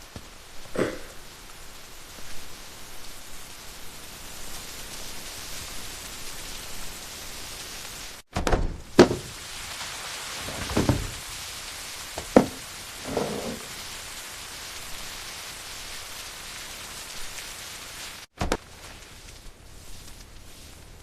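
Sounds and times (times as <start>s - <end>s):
steady rain: 0.0s - 21.0s
knocks and thuds: 8.3s - 9.4s, 10.4s - 11.3s, 12.2s - 13.7s, 18.4s - 18.6s.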